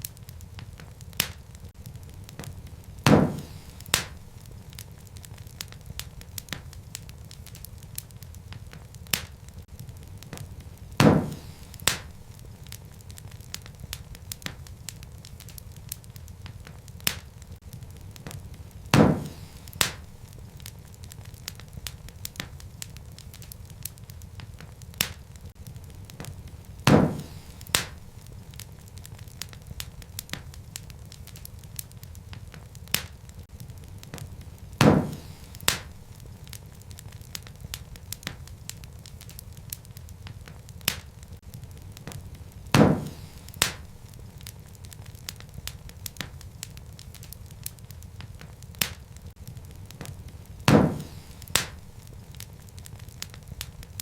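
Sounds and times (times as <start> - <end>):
wood fire crackling: 0.0 - 54.0
loud fire pop: 0.6 - 4.9, 7.6 - 12.8, 16.4 - 20.4, 23.9 - 28.3, 32.3 - 37.1, 40.9 - 44.7, 48.4 - 53.4.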